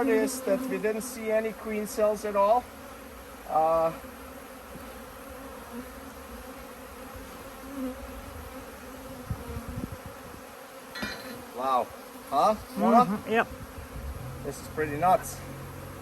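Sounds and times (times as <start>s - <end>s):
bees buzzing: 0.0s - 16.0s
dull low bumps: 13.6s - 16.0s.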